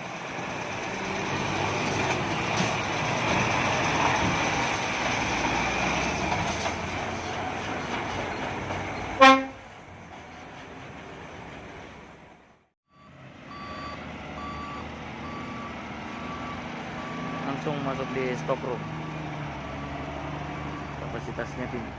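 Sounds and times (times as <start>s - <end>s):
truck engine and road noise: 0.0s - 21.9s
truck horn blast: 9.2s - 9.6s.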